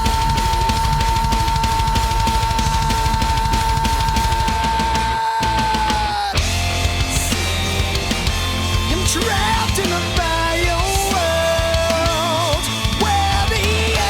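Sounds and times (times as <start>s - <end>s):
heavy rock music: 0.0s - 14.0s.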